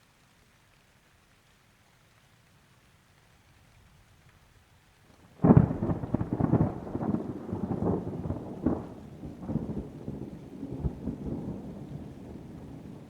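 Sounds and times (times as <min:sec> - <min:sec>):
thunderclap rumbling: 0:05.4 - 0:13.0.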